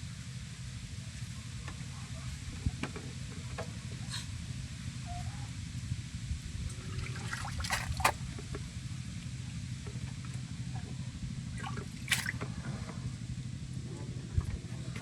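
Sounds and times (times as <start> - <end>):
steady low rumble: 6.0 - 9.0, 9.7 - 15.0
water splashing and dripping: 7.0 - 8.2, 11.6 - 12.4.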